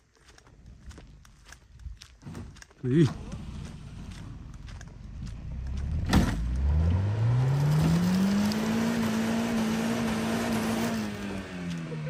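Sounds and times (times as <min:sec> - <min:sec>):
wheels spinning on dirt: 0:00.1 - 0:12.0
car engine revving: 0:03.0 - 0:12.0.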